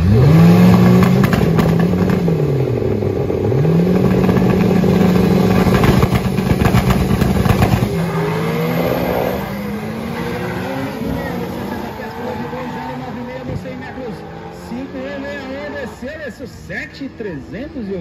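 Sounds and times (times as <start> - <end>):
exhaust crackling: 0.0 - 16.2
drag car engines revving: 0.0 - 18.0.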